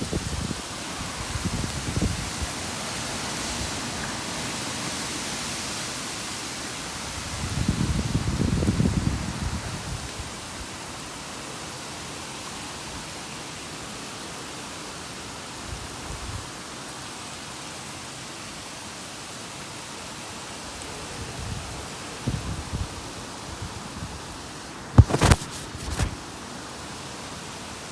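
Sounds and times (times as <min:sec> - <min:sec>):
wind gusts buffeting microphone: 0:00.0 - 0:04.0, 0:07.3 - 0:10.1, 0:25.0 - 0:26.2.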